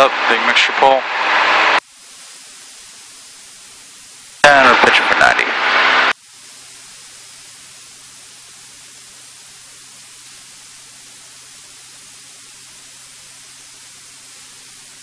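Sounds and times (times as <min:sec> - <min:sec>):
intercom hiss: 0:00.0 - 0:15.0.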